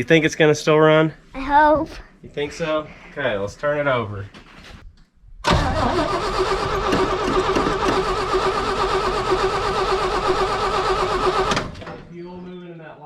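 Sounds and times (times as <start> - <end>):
truck starter cranking engine: 5.4 - 12.0.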